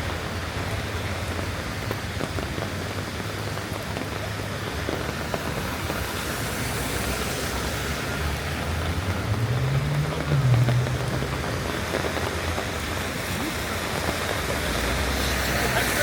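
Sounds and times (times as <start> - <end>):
rain falling: 0.0 - 16.0
low steady rumble: 8.3 - 13.5.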